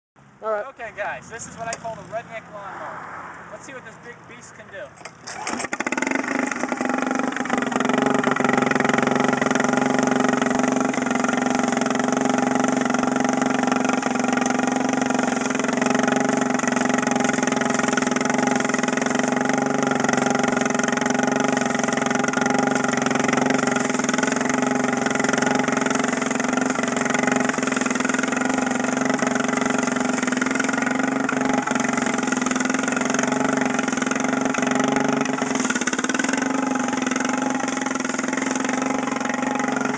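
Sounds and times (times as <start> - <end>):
small engine running loud: 5.2 - 39.9.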